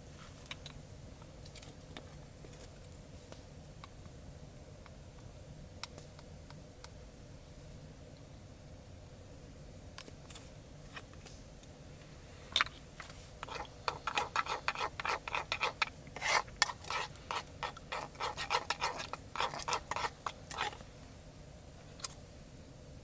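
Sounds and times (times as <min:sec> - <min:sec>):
quick scraping strokes: 0:13.4 - 0:20.8.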